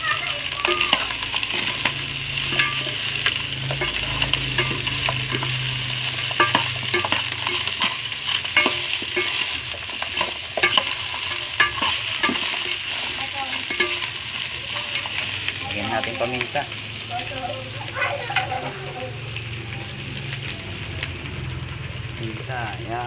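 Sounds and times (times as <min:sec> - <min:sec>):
meat sizzling in a pot: 0:00.0 - 0:23.0
metal spoon scraping a pot: 0:00.6 - 0:16.3.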